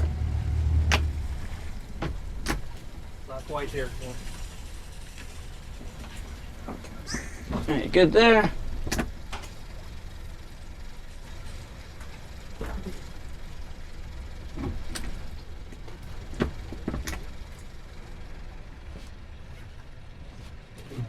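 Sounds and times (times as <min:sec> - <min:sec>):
sharp knocks and bumps: 0:00.0 - 0:04.4, 0:14.5 - 0:17.4
boat engine idling: 0:00.0 - 0:21.0.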